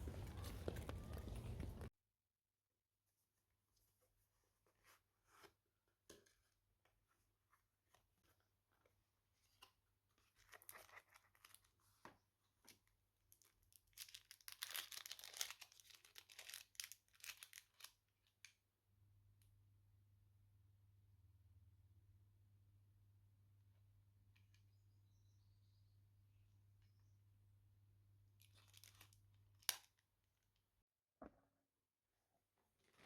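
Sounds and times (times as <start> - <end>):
packaging crinkling and tearing: 0.0 - 1.9, 13.4 - 18.0, 28.4 - 29.9.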